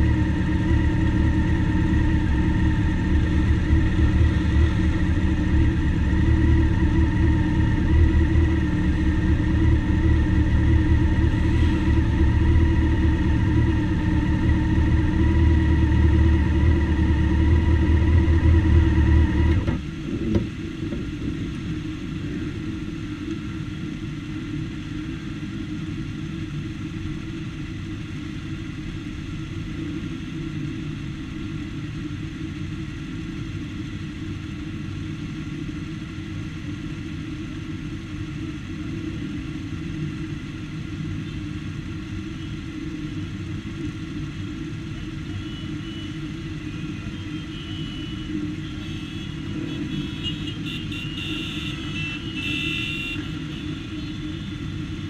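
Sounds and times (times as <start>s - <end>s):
motorcycle engine idling: 0.0s - 19.5s
many motorcycles idling: 0.0s - 55.0s.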